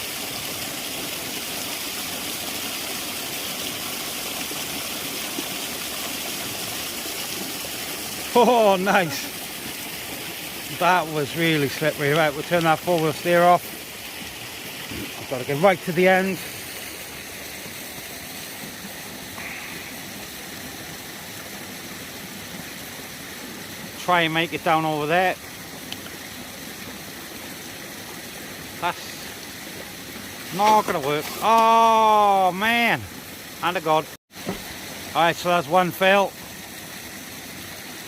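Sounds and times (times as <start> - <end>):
waterfall and stream rushing: 0.0 - 38.0.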